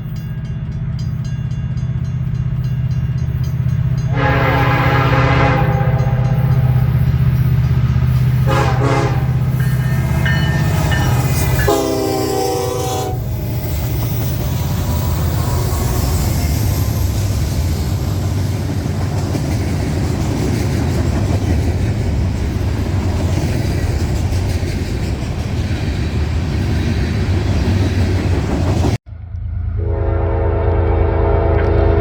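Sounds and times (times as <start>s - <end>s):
train rumbling on rails: 0.0s - 32.0s
locomotive air horn chord: 4.0s - 7.3s, 8.3s - 13.3s, 29.7s - 32.0s.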